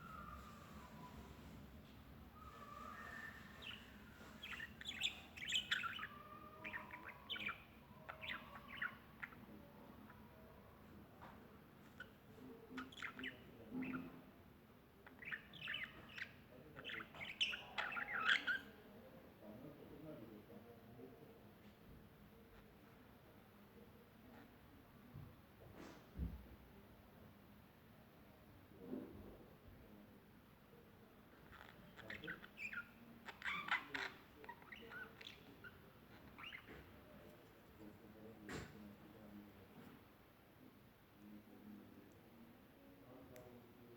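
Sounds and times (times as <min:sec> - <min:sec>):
birds chirping: 0:00.0 - 0:10.8, 0:11.8 - 0:14.4, 0:15.0 - 0:19.0, 0:31.3 - 0:39.8.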